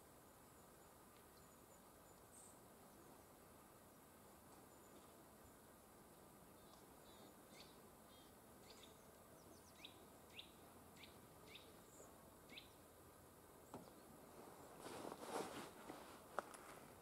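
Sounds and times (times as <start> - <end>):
faint background hiss: 0.0 - 17.0
small bird chirping: 6.6 - 12.8.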